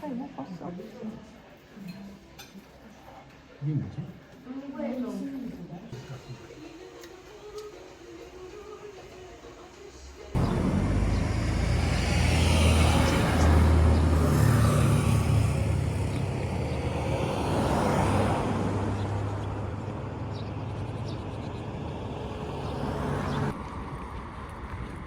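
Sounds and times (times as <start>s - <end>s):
vehicle engine running: 10.4s - 23.8s
traffic-like noise: 10.4s - 25.0s
wind: 10.4s - 25.0s.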